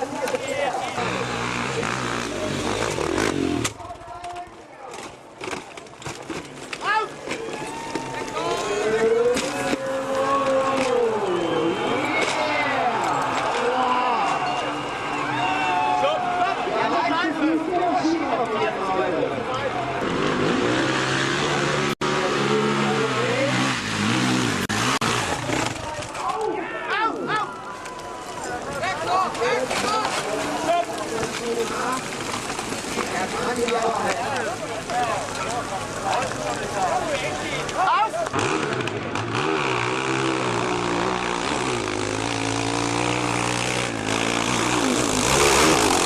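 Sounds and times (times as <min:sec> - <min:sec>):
motorcycle engine revving: 0:00.8 - 0:04.1, 0:19.8 - 0:26.1, 0:37.2 - 0:46.0.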